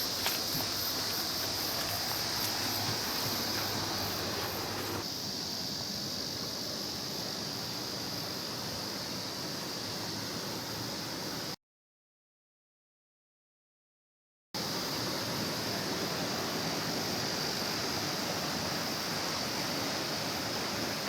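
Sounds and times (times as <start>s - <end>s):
stream rushing over rocks: 0.0s - 5.0s, 15.0s - 21.0s
high-pitched insect drone: 0.0s - 11.5s.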